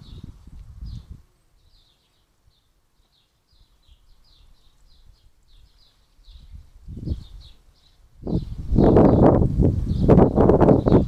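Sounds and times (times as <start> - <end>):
wind rumble on microphone: 0.0 - 1.8, 4.3 - 11.0
small songbird chirping: 0.0 - 11.0.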